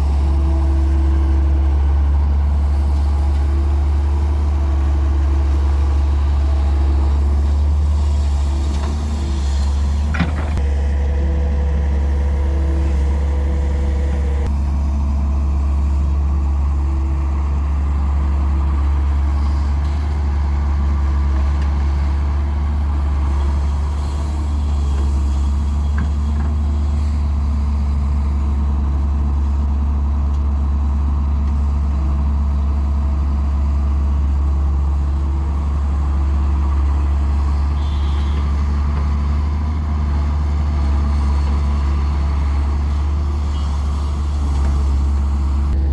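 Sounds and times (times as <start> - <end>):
diesel engine humming: 0.0 - 45.9.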